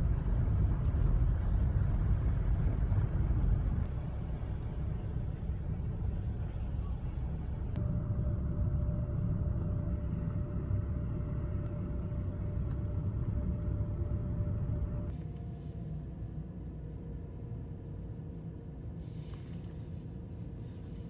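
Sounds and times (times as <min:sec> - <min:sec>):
faint steady whine: 0:00.0 - 0:21.0
motor vehicle rumble: 0:00.0 - 0:21.0.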